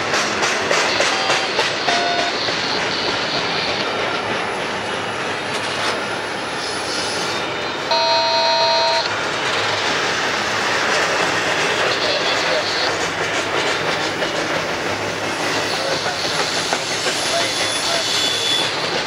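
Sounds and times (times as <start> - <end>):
train wheels rumbling on track: 0.0 - 19.0
high metallic squeal: 17.2 - 18.8.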